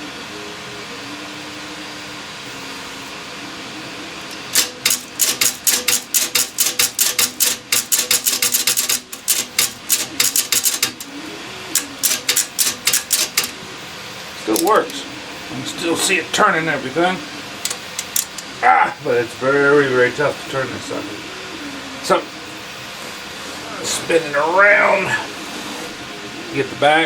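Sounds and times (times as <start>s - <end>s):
cash register gears clicking: 4.3s - 13.7s, 14.5s - 15.0s, 17.6s - 18.5s.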